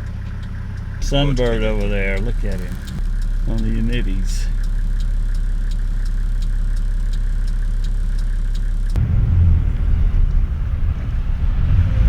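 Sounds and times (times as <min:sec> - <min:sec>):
light regular ticking: 0:00.0 - 0:09.0
vehicle engine and road rumble: 0:00.0 - 0:12.0.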